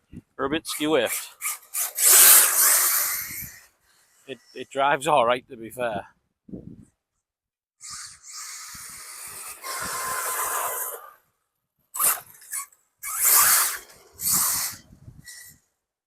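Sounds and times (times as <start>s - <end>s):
rc car motor and tyres: 0.4s - 4.6s, 7.8s - 15.8s.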